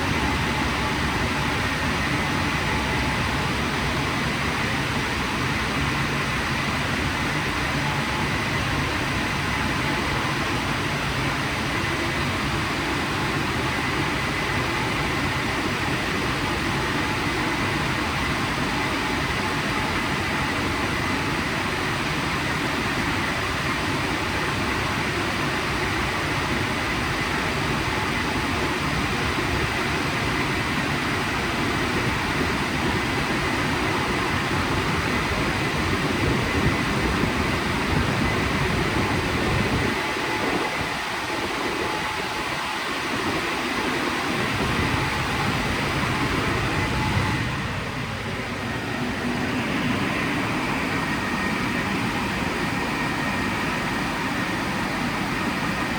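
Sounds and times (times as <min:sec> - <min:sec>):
faint steady whine: 0:00.0 - 0:55.9.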